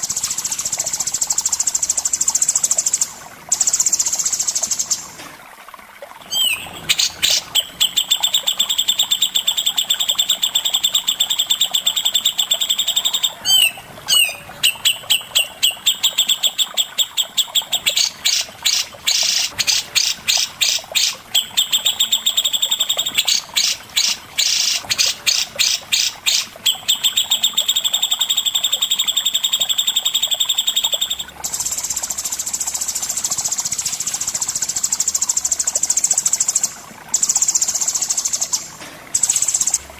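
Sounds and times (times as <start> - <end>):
songbird singing: 6.3 - 28.6.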